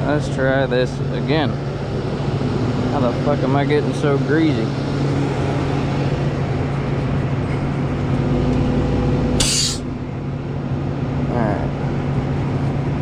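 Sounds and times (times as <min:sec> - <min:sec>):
diesel engine idling: 0:00.0 - 0:13.0
compressed air hiss: 0:09.4 - 0:09.9.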